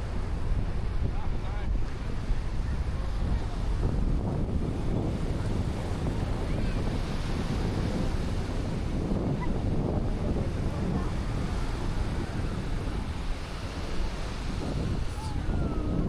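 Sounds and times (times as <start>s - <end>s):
wind buffeting microphone: 0.0s - 16.0s
surf washing onto shore: 0.1s - 16.0s.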